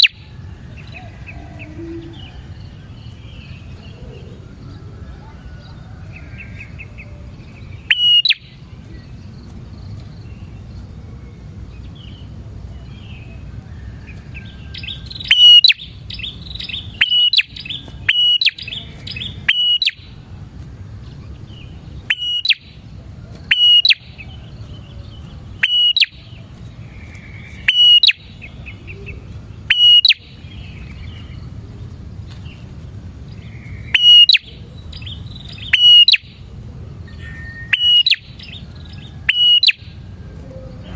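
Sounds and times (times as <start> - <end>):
bird sharp high calls: 0.0 - 4.6, 5.2 - 9.1, 14.1 - 20.2, 22.0 - 22.8, 23.4 - 31.4, 33.3 - 36.5, 37.1 - 40.1
low steady rumble: 0.1 - 40.9.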